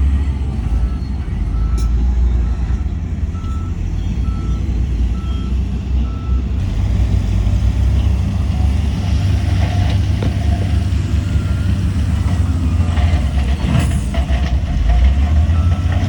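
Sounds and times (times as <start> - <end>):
diesel machinery rumbling: 0.0 - 16.0
reversing alarm beeping: 0.7 - 6.5.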